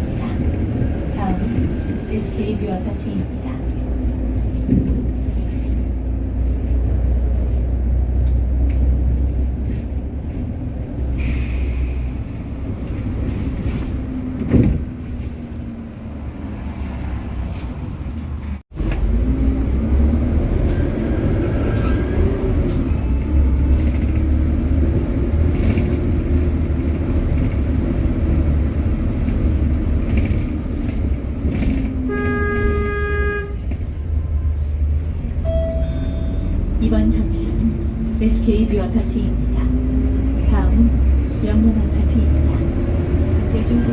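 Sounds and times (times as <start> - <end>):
bus engine drone: 0.0 - 43.9
short electronic tone: 35.4 - 36.6.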